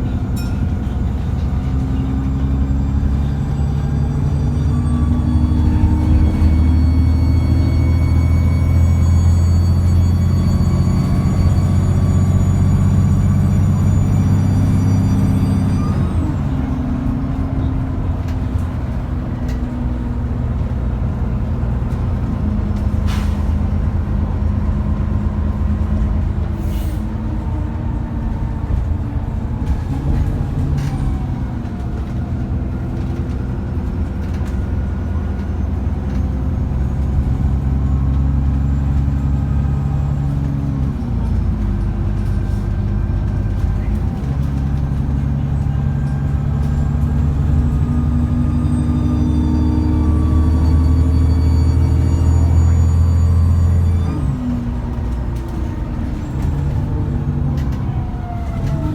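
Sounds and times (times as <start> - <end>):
bus diesel engine running: 0.0 - 58.9
faint turbo whine: 45.4 - 58.9.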